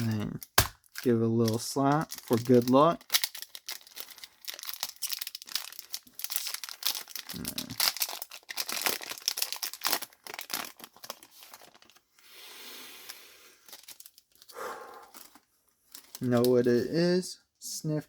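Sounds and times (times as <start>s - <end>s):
foil wrapper crinkling and tearing: 0.0s - 12.1s, 13.6s - 14.5s, 15.1s - 16.7s
person sniffing: 12.2s - 13.6s, 14.5s - 15.2s.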